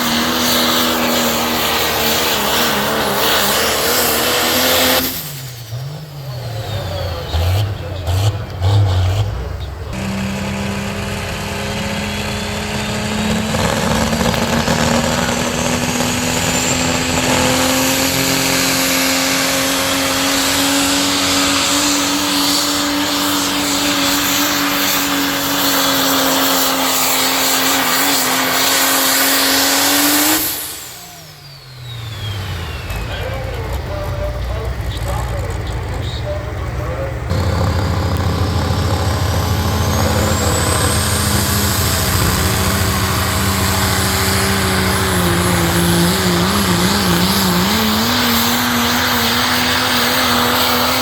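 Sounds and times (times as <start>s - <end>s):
diesel truck engine at full throttle: 0.0s - 51.0s.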